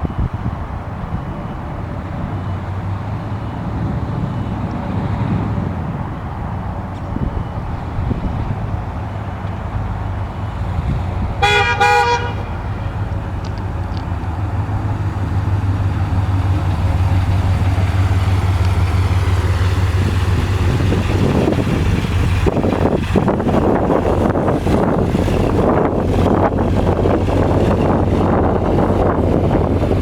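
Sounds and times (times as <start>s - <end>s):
engine running: 0.0s - 30.0s
rushing noise: 0.0s - 30.0s
car horn honk: 11.4s - 12.9s.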